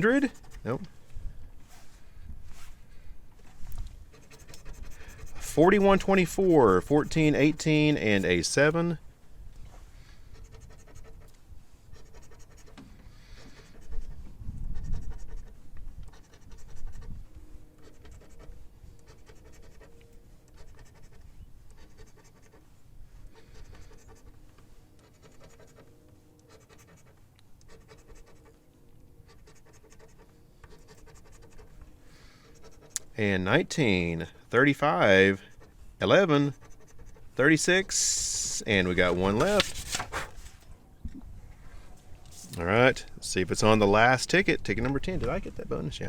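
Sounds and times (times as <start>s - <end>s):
scratching lottery ticket: 0.0s - 0.8s, 4.1s - 9.0s, 10.3s - 12.8s, 13.4s - 22.7s, 23.3s - 31.8s, 32.4s - 34.0s, 34.8s - 40.6s, 42.3s - 42.9s.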